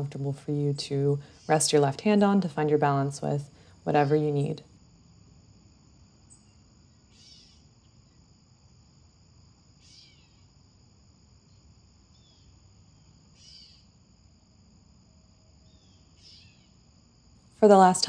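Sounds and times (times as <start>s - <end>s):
high insect drone: 4.8s - 17.5s.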